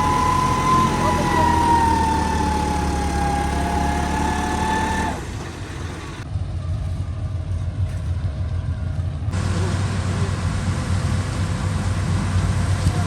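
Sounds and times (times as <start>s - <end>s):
tractor engine rumbling: 0.0s - 6.3s, 9.4s - 13.0s.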